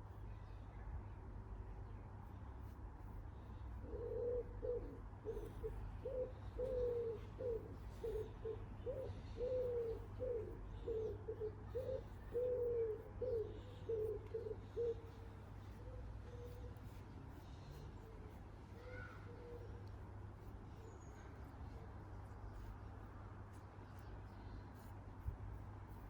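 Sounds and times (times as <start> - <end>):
pigeon cooing: 3.8 - 16.7.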